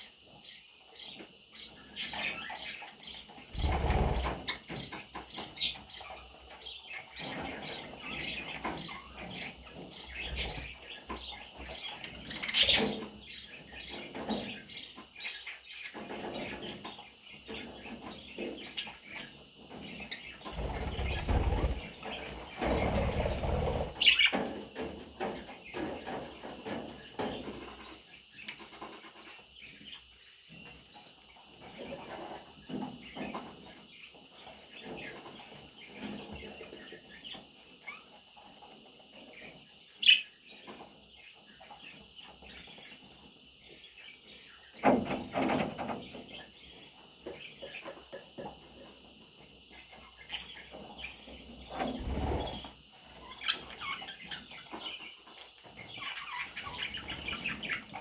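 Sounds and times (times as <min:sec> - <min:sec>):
budgerigar chicks chirping: 0:00.3 - 0:24.5, 0:49.7 - 0:58.0.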